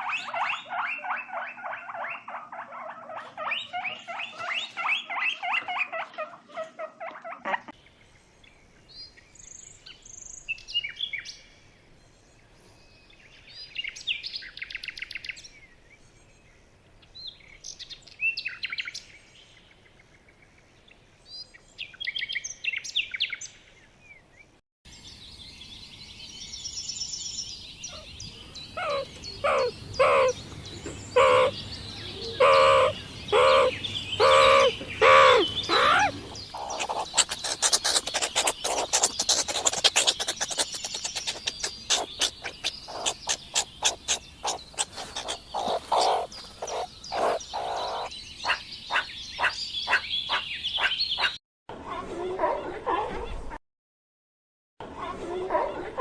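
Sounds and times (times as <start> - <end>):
bird chirps: 0.0 - 6.1, 24.9 - 51.4
loud animal calls: 28.8 - 50.4
short clicking calls: 36.6 - 47.4.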